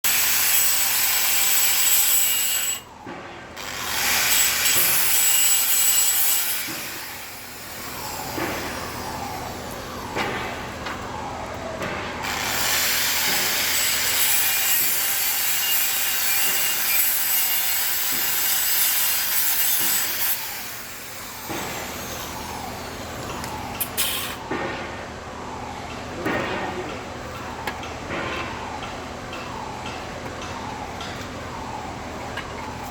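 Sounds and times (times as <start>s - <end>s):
saw rasping through pipe: 0.0s - 2.9s, 3.6s - 9.2s, 12.2s - 22.0s.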